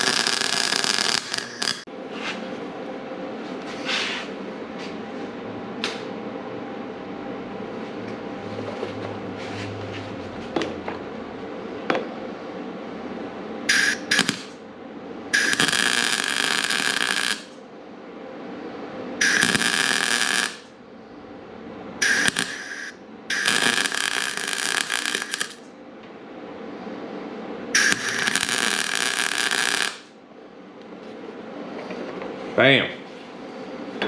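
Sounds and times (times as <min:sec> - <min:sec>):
arc welding hissing bursts: 0:00.0 - 0:01.9, 0:13.7 - 0:14.6, 0:15.3 - 0:17.6, 0:19.2 - 0:20.7, 0:22.0 - 0:25.6, 0:27.8 - 0:30.1
shop hum: 0:00.0 - 0:34.0.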